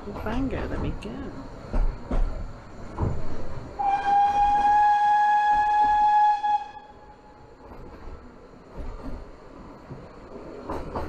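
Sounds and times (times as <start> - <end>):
train running noise: 0.0 - 11.0
steam locomotive whistle blast: 3.8 - 7.0.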